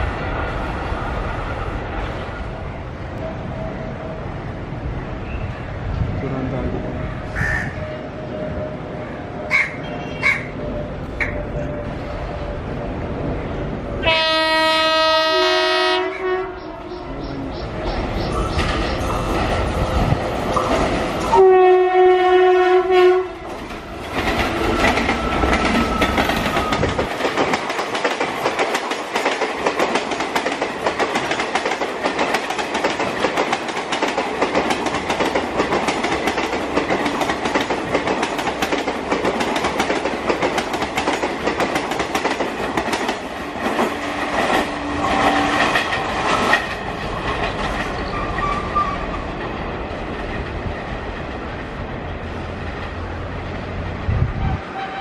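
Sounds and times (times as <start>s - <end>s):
locomotive horn blast: 14.0s - 17.0s, 21.3s - 23.6s, 54.3s - 55.0s
train wheels clattering on rails: 16.9s - 21.4s, 23.4s - 51.8s.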